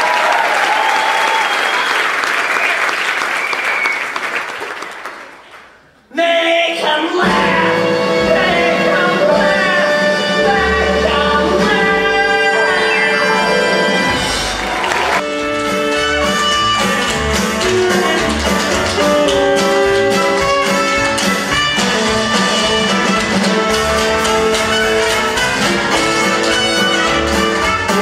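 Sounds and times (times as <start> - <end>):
orchestra playing show-tune music: 7.1 - 28.0.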